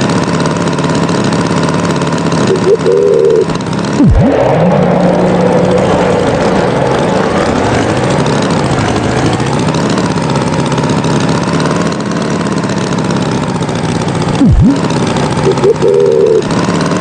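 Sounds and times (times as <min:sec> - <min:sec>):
tractor engine droning: 0:00.0 - 0:17.0
loud swooping sound: 0:04.0 - 0:08.3.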